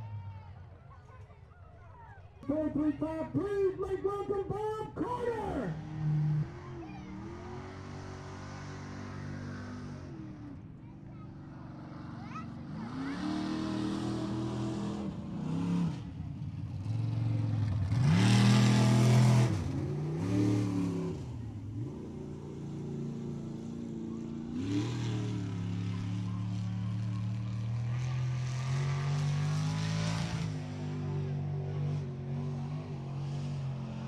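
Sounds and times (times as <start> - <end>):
truck engine revving hard: 11.7 - 16.2, 16.8 - 34.0.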